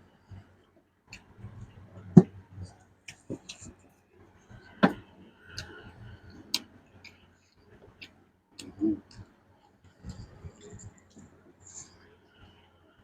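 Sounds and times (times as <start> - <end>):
low mouth sound: 7.9 - 9.3.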